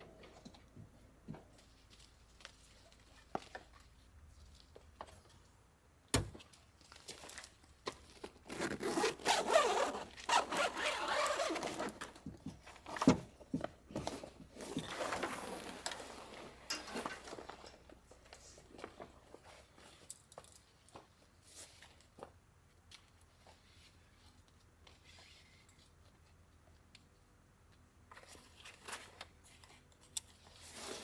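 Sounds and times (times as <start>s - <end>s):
material rubbing and rustling: 8.5s - 12.0s.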